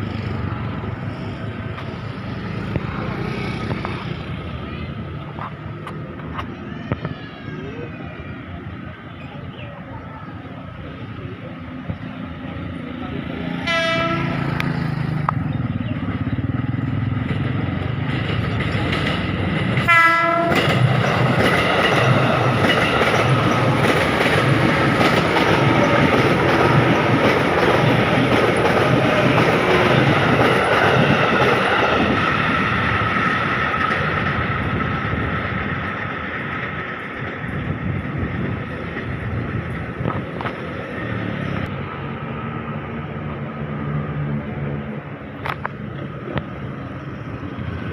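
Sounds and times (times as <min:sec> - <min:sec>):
train wheels rumbling on rails: 0:00.0 - 0:47.9
train horn blasts: 0:13.6 - 0:14.6, 0:19.9 - 0:20.7.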